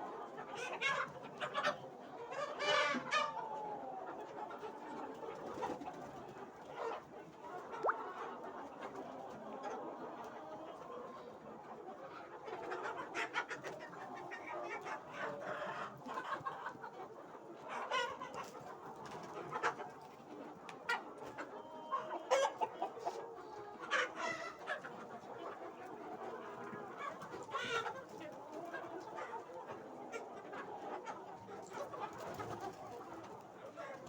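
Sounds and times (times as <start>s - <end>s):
chickens clucking: 0.0s - 34.0s.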